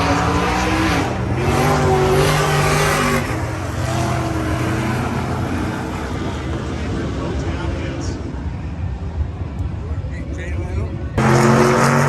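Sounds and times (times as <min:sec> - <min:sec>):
loud car engines running: 0:00.0 - 0:12.0.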